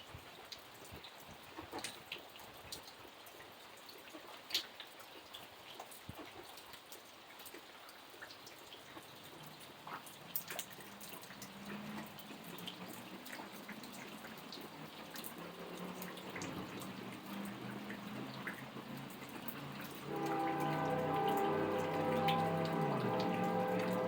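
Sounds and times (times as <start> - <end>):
hiss of falling rain: 0.0 - 24.0
rain drops ticking on a surface: 0.0 - 24.0
low hum: 19.8 - 24.0
several steady tones: 19.8 - 24.0.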